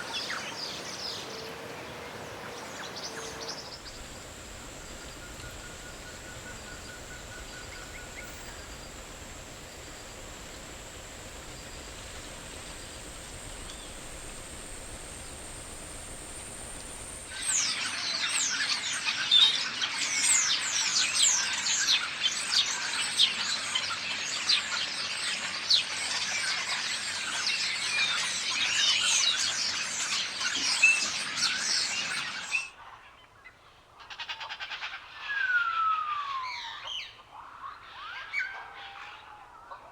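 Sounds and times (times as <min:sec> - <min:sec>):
birds chirping and whistling: 0:03.7 - 0:17.6
steady high-pitched tone: 0:03.7 - 0:17.6.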